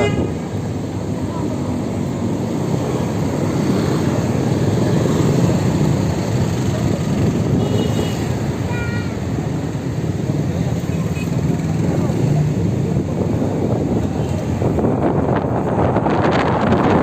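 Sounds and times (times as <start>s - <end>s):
rushing wind and road noise: 0.0s - 17.0s.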